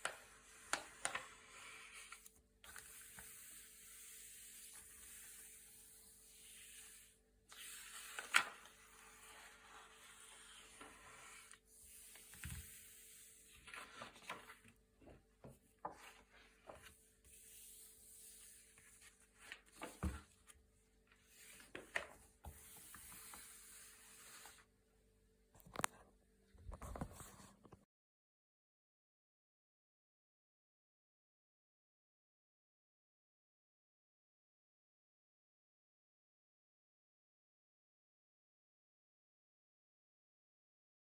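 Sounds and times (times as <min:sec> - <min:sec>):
paper sliding swishes: 0:00.0 - 0:14.6, 0:15.8 - 0:20.3, 0:21.2 - 0:24.6
page flipping snaps: 0:08.1 - 0:08.7.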